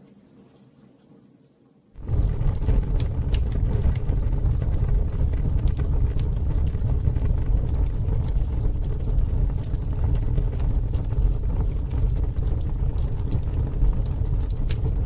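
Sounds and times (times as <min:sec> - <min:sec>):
campfire rumble: 0:02.0 - 0:15.0
fire crackling and popping: 0:02.0 - 0:15.0.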